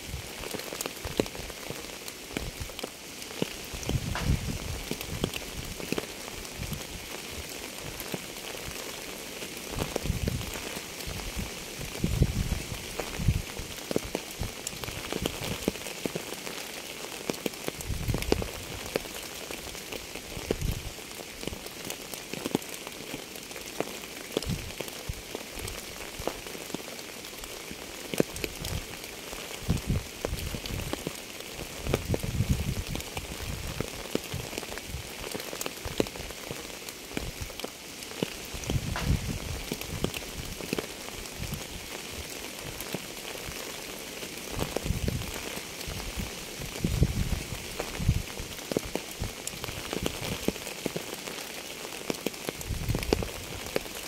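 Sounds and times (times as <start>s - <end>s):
steady rain falling: 0.0s - 54.0s
deep thud: 4.1s - 4.6s, 38.9s - 39.4s.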